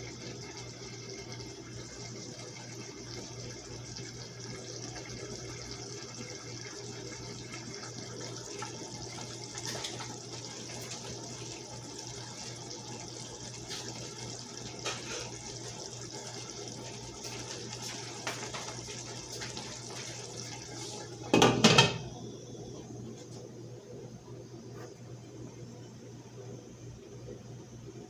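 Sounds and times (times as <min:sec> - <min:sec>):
water running from a tap: 0:00.0 - 0:22.0.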